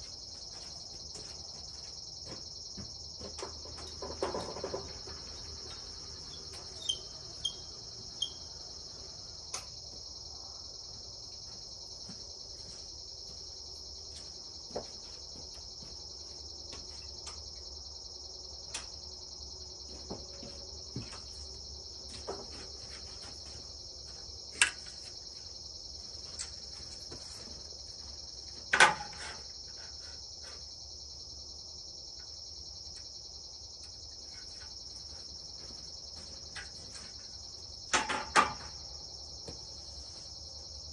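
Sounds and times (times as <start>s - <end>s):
crickets chirping: 0.0s - 40.9s
scattered clicks and knocks: 2.3s - 5.8s, 37.9s - 38.8s.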